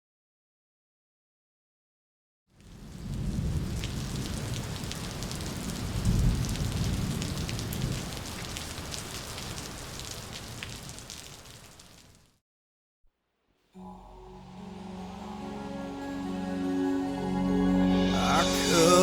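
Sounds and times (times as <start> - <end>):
rain falling: 2.6 - 12.3
thunder rolling: 2.8 - 8.2.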